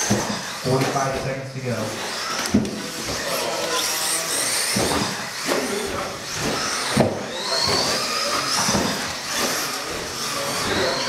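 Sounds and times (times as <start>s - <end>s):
rc truck motors whining: 0.0s - 1.2s, 1.8s - 11.0s.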